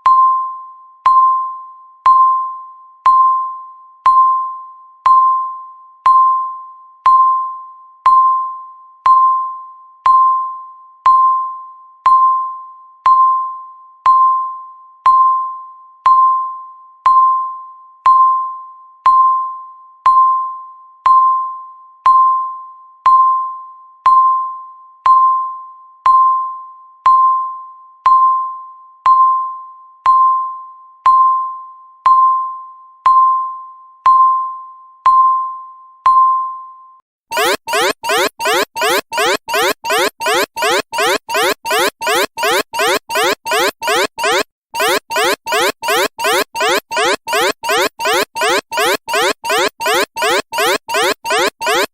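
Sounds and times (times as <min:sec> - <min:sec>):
high electronic timer ping: 0:37.3 - 0:51.9.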